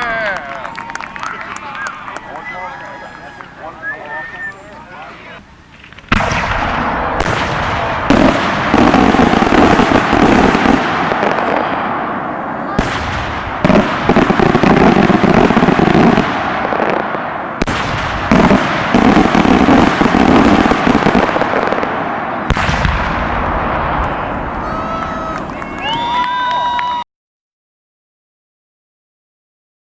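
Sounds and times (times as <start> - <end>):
firework shells bursting: 5.7 - 25.6
firework crackling: 5.7 - 27.0.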